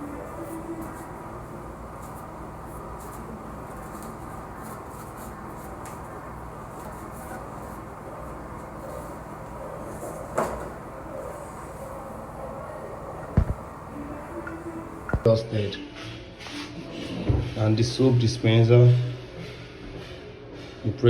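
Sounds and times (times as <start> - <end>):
low background hum: 0.0 - 15.8.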